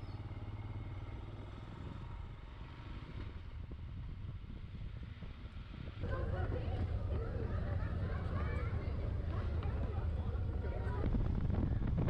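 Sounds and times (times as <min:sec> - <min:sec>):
motorcycle engine running: 0:00.0 - 0:07.2
road and wind noise: 0:00.0 - 0:12.0.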